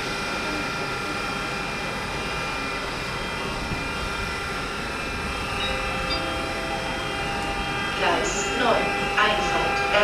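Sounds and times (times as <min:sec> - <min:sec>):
freight train rumbling: 0:00.0 - 0:10.0
steady high tones: 0:03.4 - 0:10.0.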